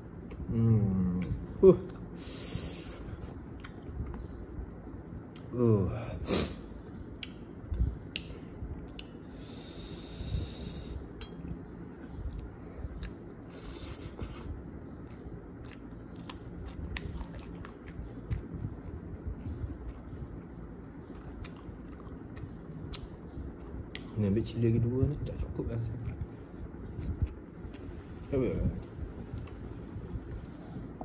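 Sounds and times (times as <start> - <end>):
breathy hisses: 2.2 - 3.1, 9.3 - 11.1
chewing food: 3.2 - 4.3, 11.2 - 13.5, 14.8 - 24.3.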